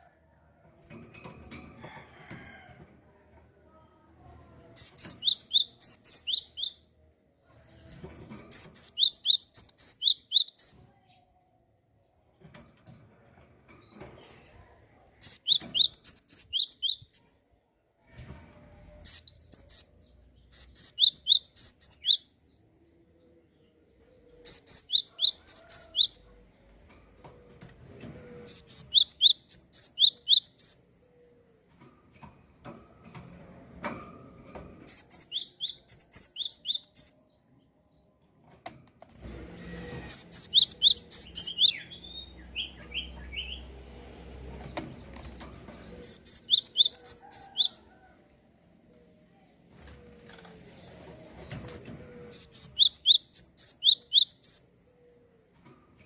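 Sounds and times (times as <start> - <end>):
songbird singing: 4.7 - 7.0, 8.4 - 11.3, 15.2 - 17.4, 19.0 - 26.8, 27.8 - 31.7, 34.9 - 38.6, 39.7 - 55.6.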